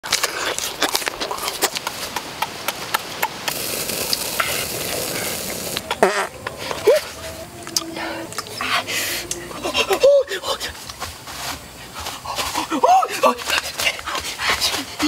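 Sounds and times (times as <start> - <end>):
crackling clicks: 0.1 - 6.6
prawns sizzling on hot stone: 3.4 - 6.3.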